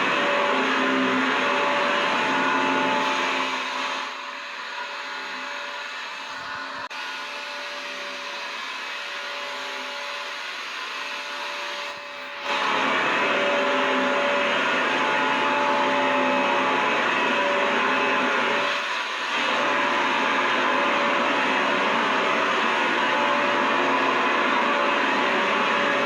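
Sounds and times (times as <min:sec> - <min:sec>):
vacuum cleaner motor: 0:00.0 - 0:26.0.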